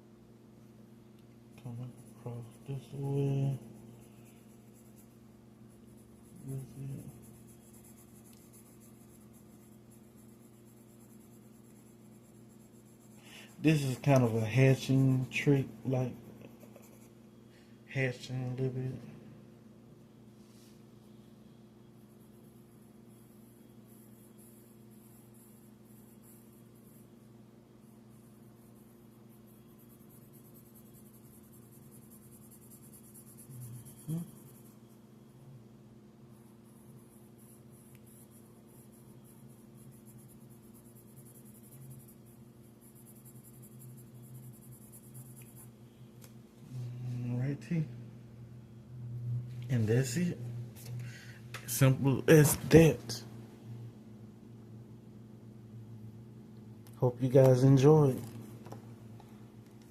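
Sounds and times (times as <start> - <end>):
low electrical hum: 0.0 - 59.9
pencil scratching on paper: 1.6 - 17.2, 22.0 - 35.0, 36.3 - 45.8.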